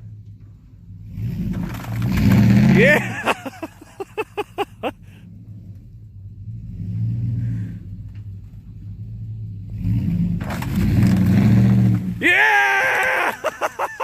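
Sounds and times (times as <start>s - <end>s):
truck engine revving hard: 1.0s - 8.0s, 9.0s - 12.7s.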